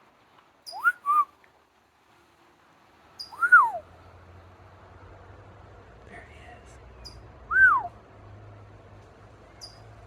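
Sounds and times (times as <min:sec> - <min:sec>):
small bird chirping: 0:00.6 - 0:01.2, 0:03.2 - 0:03.7, 0:09.6 - 0:09.9
man whistling: 0:00.8 - 0:01.3.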